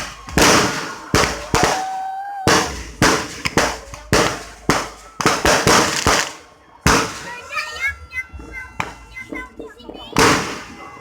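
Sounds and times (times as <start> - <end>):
fireworks bangs: 0.0 - 7.5, 10.1 - 11.0.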